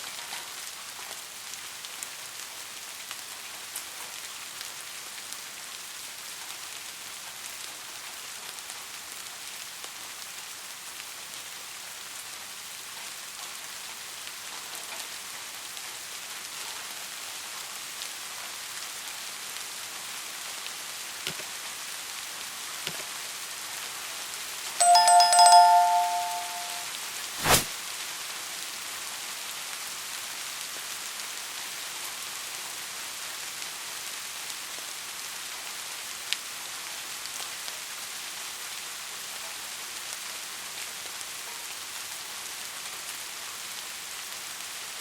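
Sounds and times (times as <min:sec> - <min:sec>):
steady rain falling: 0:00.0 - 0:45.0
two-tone ringing chime: 0:24.8 - 0:26.9.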